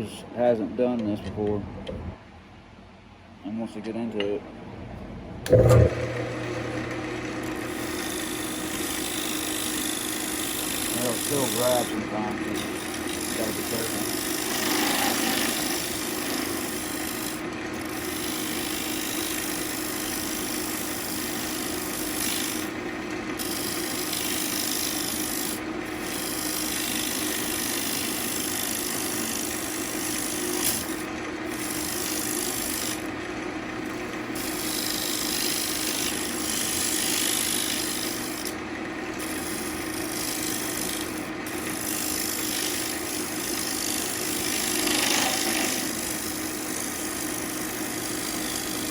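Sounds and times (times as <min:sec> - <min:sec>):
lathe motor hum: 0:05.5 - 0:48.9
lathe tool scraping wood: 0:05.5 - 0:48.9.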